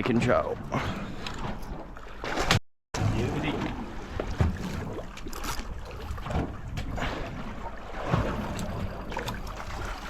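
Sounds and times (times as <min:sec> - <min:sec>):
water noise: 0:00.0 - 0:10.0
wind: 0:00.0 - 0:10.0.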